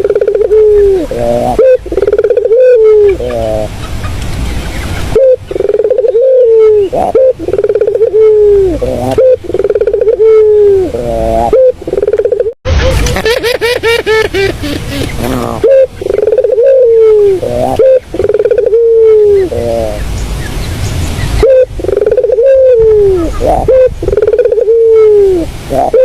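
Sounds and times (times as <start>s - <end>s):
dove cooing: 0.0s - 3.7s, 5.1s - 12.6s, 14.4s - 20.0s, 21.4s - 26.0s.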